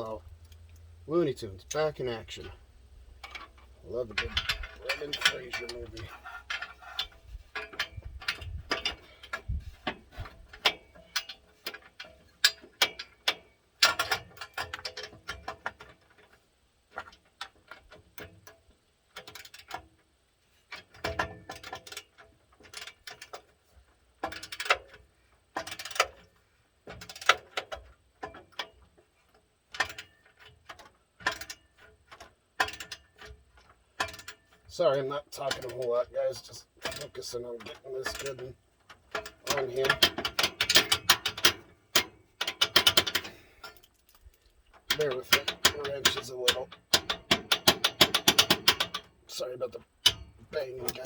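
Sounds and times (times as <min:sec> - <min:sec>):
wrench clinking against metal: 0:03.2 - 0:09.4, 0:50.1 - 0:51.0.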